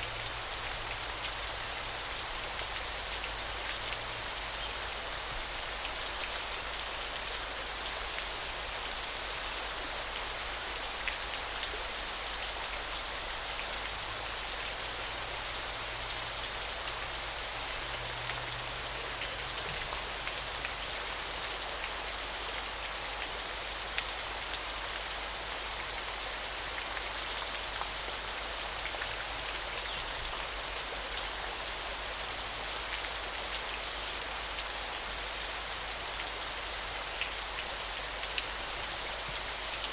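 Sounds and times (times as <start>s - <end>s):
steady hiss of water: 0.0s - 39.9s.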